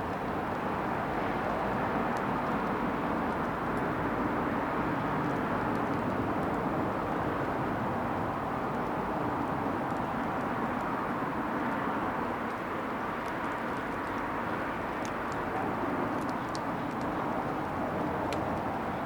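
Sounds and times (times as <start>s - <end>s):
fire crackling and popping: 1.5s - 18.8s.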